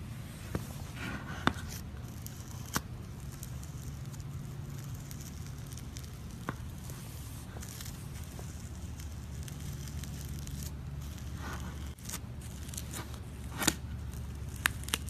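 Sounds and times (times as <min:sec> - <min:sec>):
slime crackling and popping: 0:07.6 - 0:15.0.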